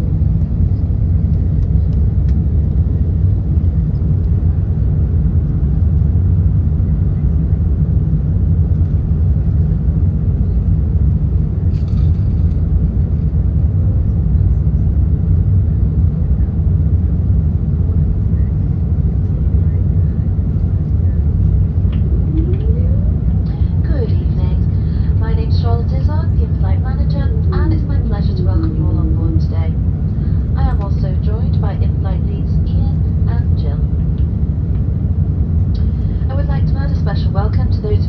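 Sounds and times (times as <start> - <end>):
airplane cabin engine rumble: 0.0 - 38.0.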